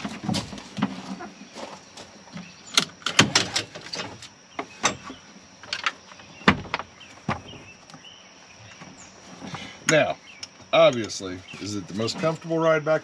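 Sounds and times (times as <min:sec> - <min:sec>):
knocks and clunks on vehicle body: 0:02.4 - 0:08.1.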